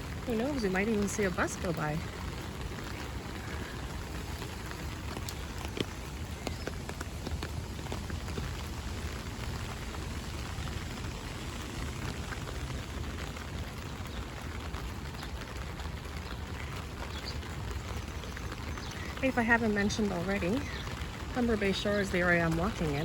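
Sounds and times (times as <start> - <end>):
rain tapping on umbrella: 0.0 - 23.0.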